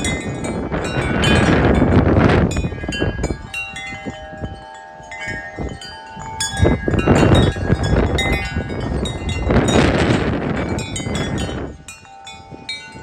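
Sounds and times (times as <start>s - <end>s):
gusty wind: 0.0s - 13.0s
wind chimes clanging: 0.0s - 13.0s.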